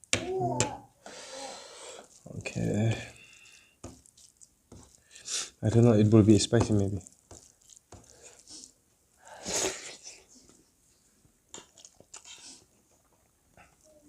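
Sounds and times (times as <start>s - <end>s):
hissing intake of breath: 1.0s - 2.1s
soft chewing: 2.0s - 8.8s, 9.9s - 14.0s.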